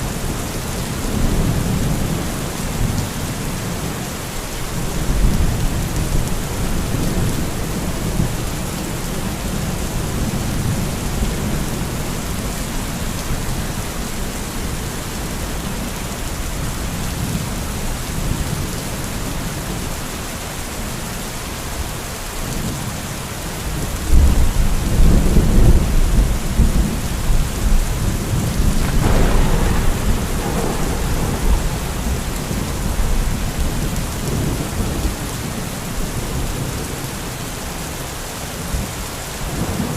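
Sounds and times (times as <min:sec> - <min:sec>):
heavy rain: 0:00.0 - 0:39.9
rolling thunder: 0:24.1 - 0:36.9
sharp thunder crack: 0:28.0 - 0:35.0.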